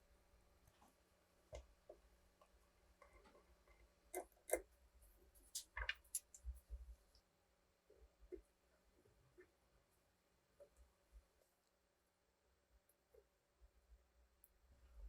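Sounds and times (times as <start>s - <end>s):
small metal parts clicking: 5.4s - 6.4s.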